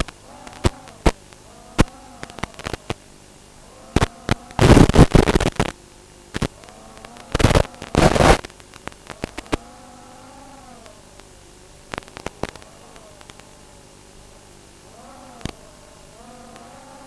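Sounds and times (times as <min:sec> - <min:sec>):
loud crackling noise bursts: 0:00.0 - 0:09.7, 0:10.8 - 0:17.0
sharp clicks: 0:04.0 - 0:09.6, 0:11.9 - 0:13.6
drone motors whining: 0:14.8 - 0:17.0.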